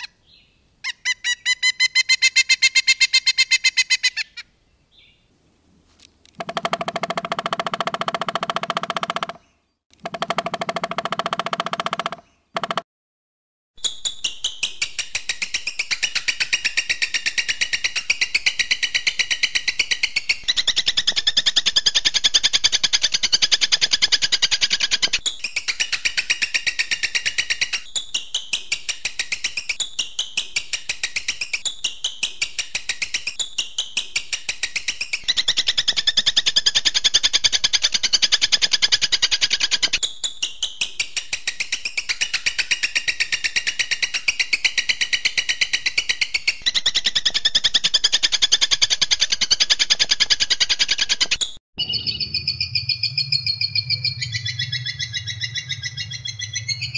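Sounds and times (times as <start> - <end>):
buzzy songbird trill: 51.8 - 56.9.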